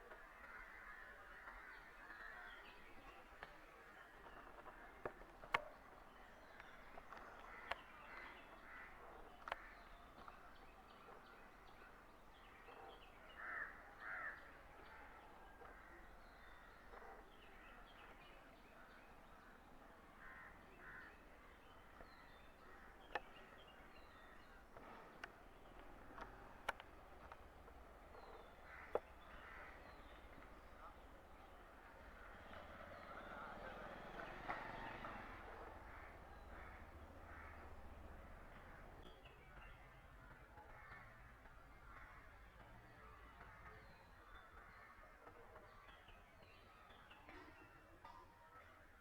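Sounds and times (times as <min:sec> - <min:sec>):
faint bird chatter: 0:00.0 - 0:34.4.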